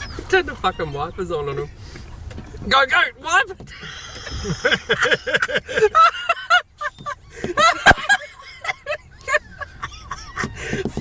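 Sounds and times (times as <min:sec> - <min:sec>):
people laughing: 0:03.7 - 0:10.9.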